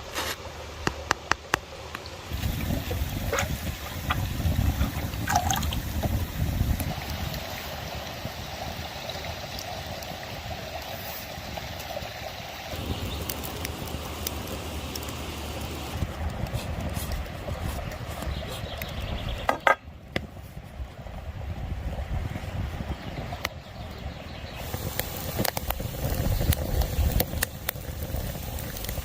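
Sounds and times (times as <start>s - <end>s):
stream water flowing: 0.1s - 16.1s.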